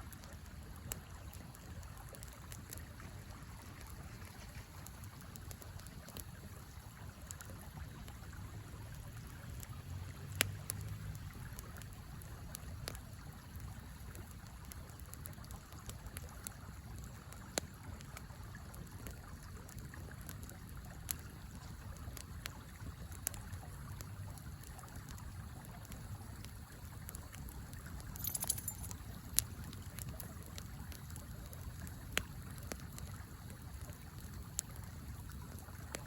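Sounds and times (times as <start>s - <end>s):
campfire crackling: 0.0s - 36.0s
river flowing: 2.4s - 12.2s, 27.4s - 30.5s.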